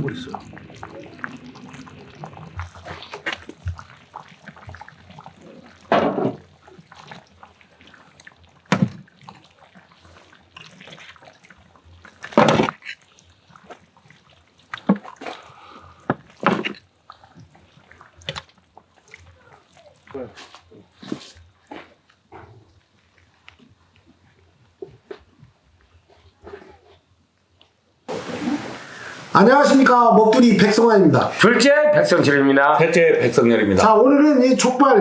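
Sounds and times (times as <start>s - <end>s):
liquid splashing and dripping: 0.0s - 9.8s, 28.1s - 31.3s.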